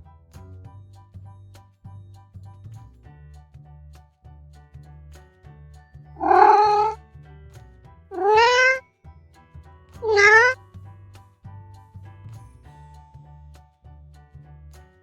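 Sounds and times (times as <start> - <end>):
background music with low beat: 0.0 - 6.1, 10.6 - 15.0
cat meowing: 6.2 - 7.0, 8.1 - 8.8, 10.0 - 10.6.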